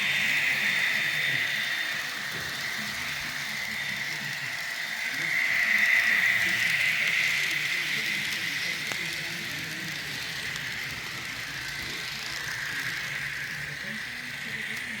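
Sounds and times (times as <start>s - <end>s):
model train whirring rattle: 0.0s - 15.0s.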